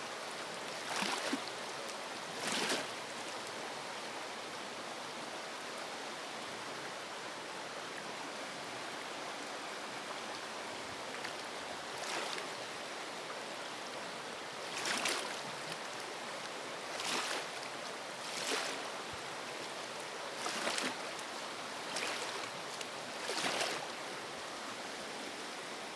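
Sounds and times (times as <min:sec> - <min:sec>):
river water rushing: 0:09.3 - 0:25.9.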